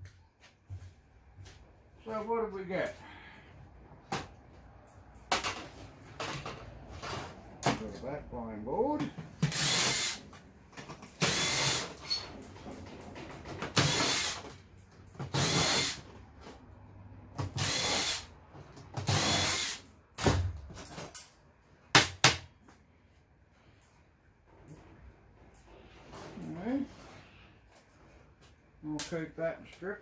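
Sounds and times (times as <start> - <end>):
cordless drill spinning screws: 9.5 - 10.2, 11.2 - 12.2, 13.8 - 14.5, 15.3 - 16.0, 17.6 - 18.3, 19.1 - 19.8.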